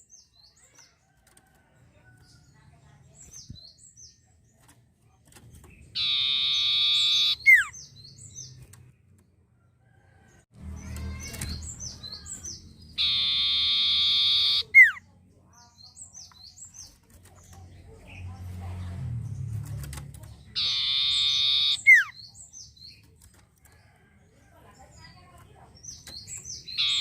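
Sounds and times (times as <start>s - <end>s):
bird chipping notes: 5.4s - 9.2s, 10.7s - 15.0s, 19.1s - 24.0s, 25.0s - 27.0s
buzzy bird whistle: 6.0s - 7.7s, 13.0s - 15.0s, 20.6s - 22.1s.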